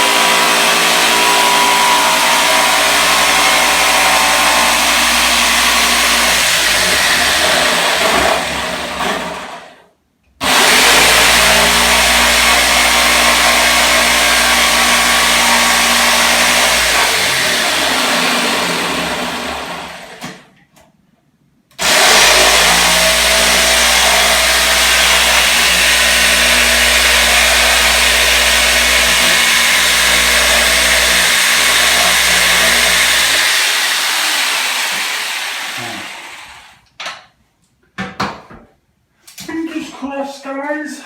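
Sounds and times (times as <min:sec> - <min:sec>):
electric motor running: 0:00.0 - 0:08.0, 0:10.4 - 0:19.9, 0:21.8 - 0:36.8.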